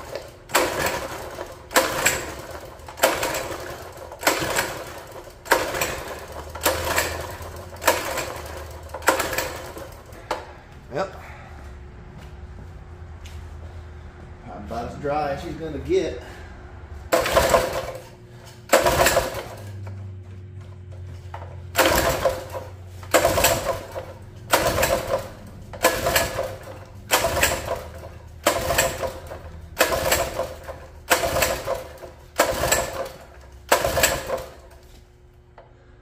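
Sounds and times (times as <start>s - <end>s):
pull-start cord pulls: 0.0s - 10.5s, 17.1s - 20.0s, 21.2s - 35.0s.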